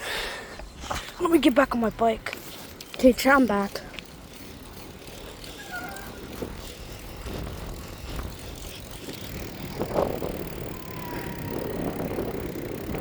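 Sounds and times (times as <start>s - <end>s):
rumble of bicycle tyres: 0.0s - 13.0s
bicycle jolt: 0.8s - 13.0s
wind on microphone: 5.4s - 13.0s.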